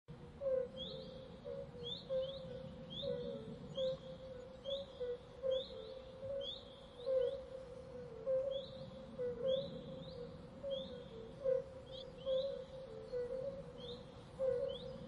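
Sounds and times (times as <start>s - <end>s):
steady low tone: 0.1s - 15.0s
bird chirping: 0.4s - 15.0s.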